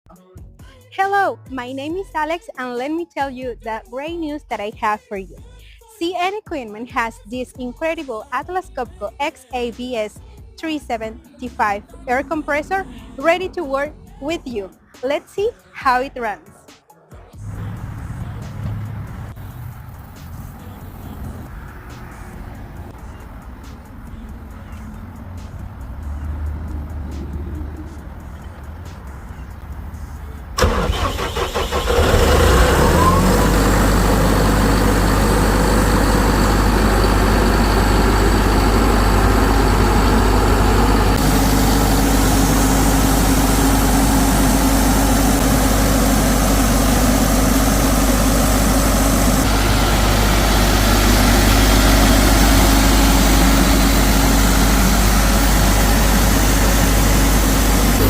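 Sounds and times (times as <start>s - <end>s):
diesel engine idling: 8.8s - 16.2s, 17.4s - 58.0s
diesel engine starter cranking: 30.5s - 58.0s.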